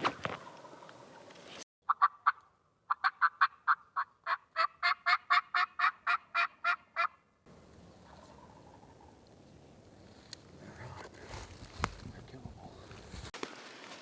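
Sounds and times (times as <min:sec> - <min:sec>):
turkey yelping: 0:01.9 - 0:11.0.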